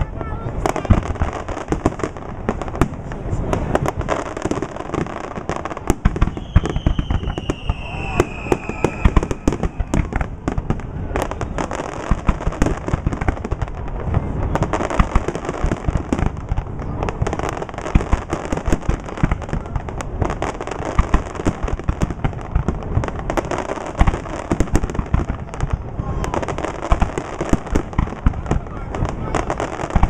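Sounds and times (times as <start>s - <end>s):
fireworks bangs and crackling: 0.0s - 30.0s
falling firework whistle: 6.1s - 10.3s.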